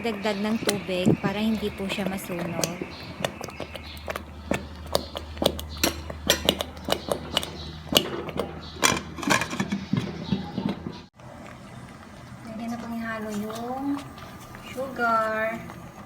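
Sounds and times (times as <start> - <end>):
spoon scraping a cooking pot: 4.5 - 11.0.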